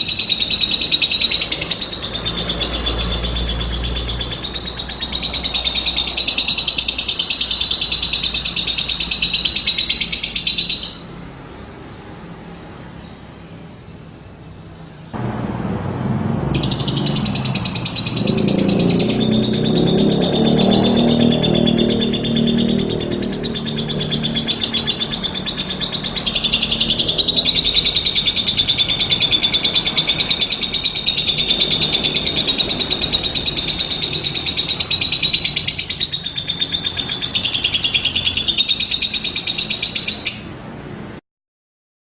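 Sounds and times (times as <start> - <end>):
bird chirping: 0.0 - 15.2, 16.4 - 40.7
synthesizer music: 15.2 - 24.9.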